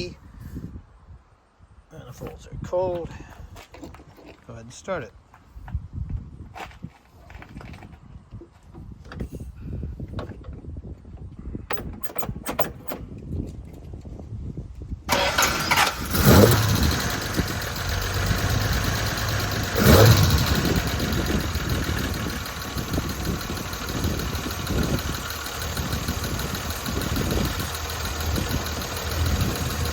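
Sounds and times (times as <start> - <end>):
car engine starting and revving: 15.1 - 29.9.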